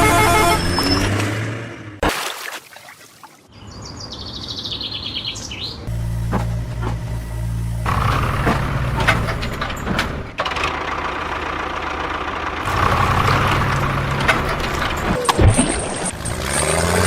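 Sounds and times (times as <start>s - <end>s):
heavy diesel engine running: 0.0s - 1.3s, 5.8s - 15.3s
sharp knocks and clatter: 8.0s - 10.6s.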